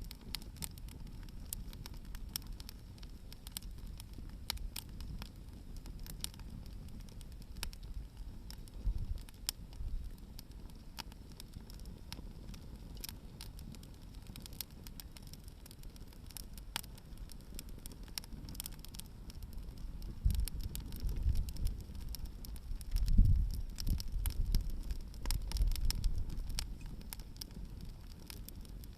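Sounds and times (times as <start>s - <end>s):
fire low rumble: 0.0s - 28.9s
firewood crackling and popping: 0.0s - 28.9s.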